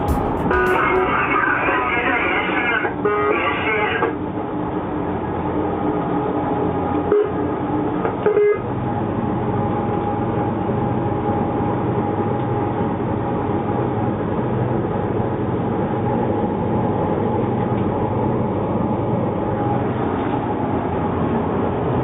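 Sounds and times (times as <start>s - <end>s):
diesel locomotive drone: 0.0s - 22.0s.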